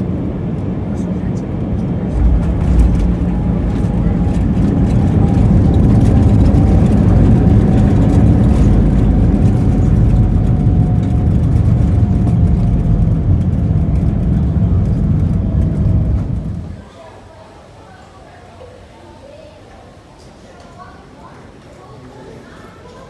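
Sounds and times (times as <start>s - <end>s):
engine rumbling: 0.3s - 16.8s.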